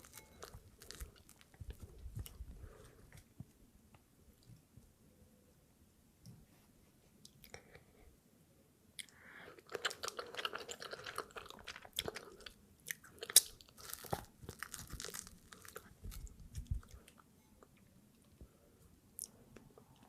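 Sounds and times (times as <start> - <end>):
chewing and biting: 9.6 - 17.0.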